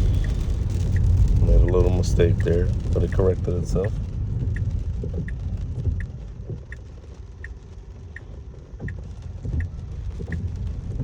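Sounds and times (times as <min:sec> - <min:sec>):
turn signal ticking: 0:00.0 - 0:11.0
tyres rumbling on wet road: 0:00.0 - 0:11.0.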